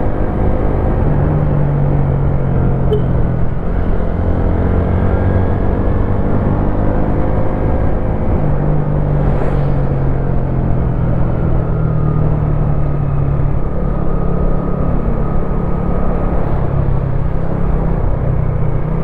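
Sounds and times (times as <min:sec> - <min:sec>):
low rumble: 0:08.8 - 0:11.8.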